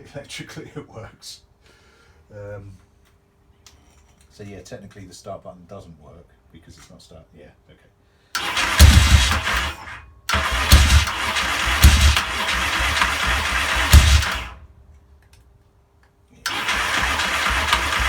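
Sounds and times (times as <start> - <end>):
engine cranking on electric starter: 8.4 - 14.8, 16.5 - 18.0.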